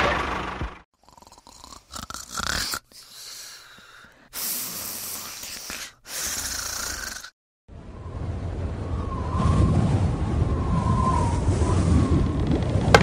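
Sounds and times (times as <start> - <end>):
snoring sound: 1.0 - 7.4.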